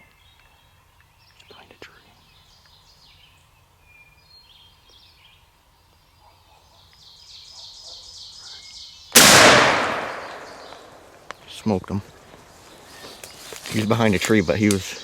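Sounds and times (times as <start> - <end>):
shotgun blast: 9.2 - 11.0
faint bird calls: 9.9 - 11.5.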